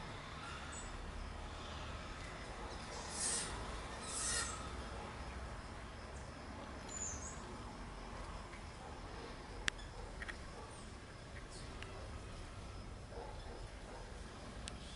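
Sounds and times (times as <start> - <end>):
bird chirp: 2.7 - 4.9, 6.9 - 7.5.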